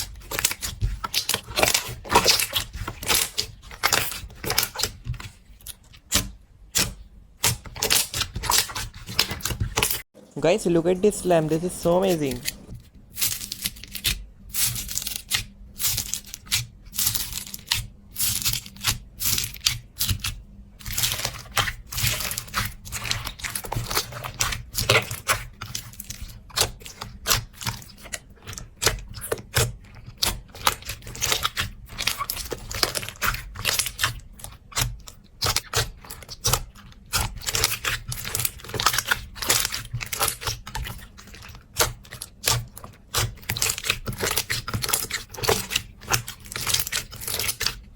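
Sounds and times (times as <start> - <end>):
slime crackling and popping: 41.9 - 47.8.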